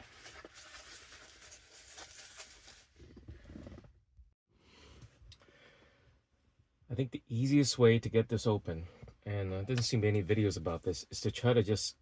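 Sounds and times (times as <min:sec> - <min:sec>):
faint scratching and handling: 0:00.0 - 0:04.0.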